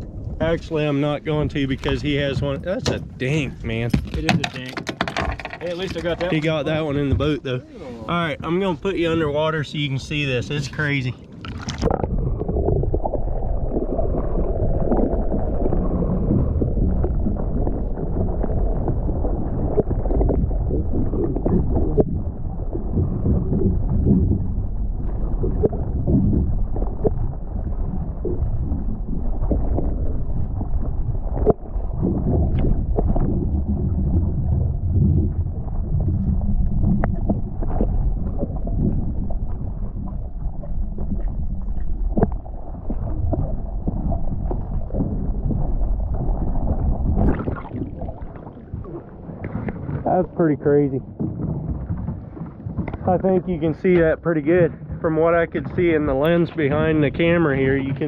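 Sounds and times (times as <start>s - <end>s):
muffled underwater rumble: 0.0s - 58.0s
sharp clicks and knocks: 3.8s - 6.5s.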